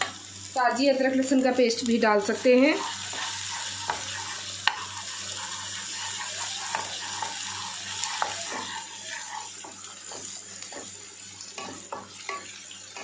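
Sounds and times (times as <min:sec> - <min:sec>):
onions sizzling in hot fat: 0:00.0 - 0:13.0
spatula tapping and scraping pan: 0:02.8 - 0:13.0.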